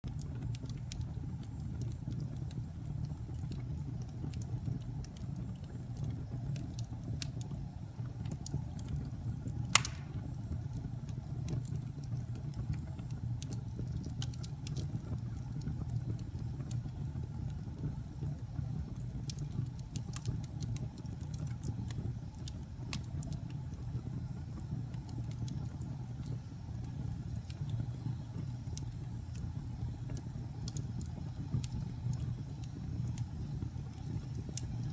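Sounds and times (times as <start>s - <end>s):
low fire rumble: 0.0s - 34.9s
wood fire crackling: 0.1s - 34.9s
sharp pop of fire: 9.7s - 10.4s.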